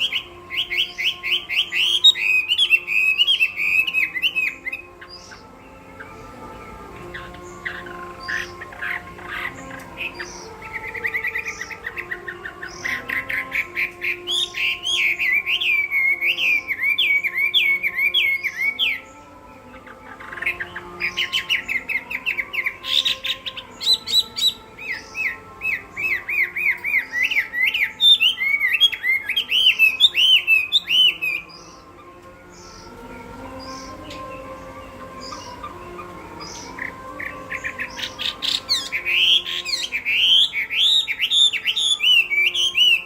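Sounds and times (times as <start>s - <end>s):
bird singing fast whistled notes: 33.6s - 43.0s.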